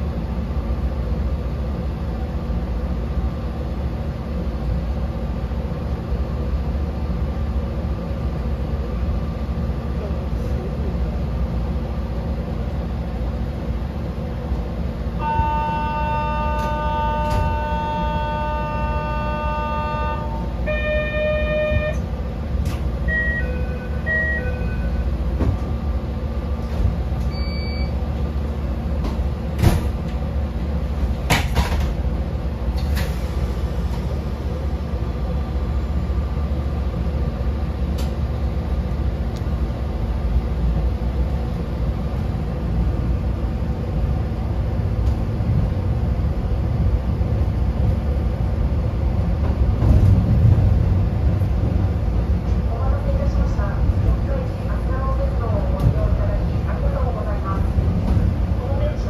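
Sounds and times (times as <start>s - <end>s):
train car rumble: 0.0s - 59.0s
short beeps: 15.2s - 22.0s, 23.1s - 25.0s, 27.3s - 28.0s
long electronic tone: 15.2s - 22.1s, 23.0s - 25.1s.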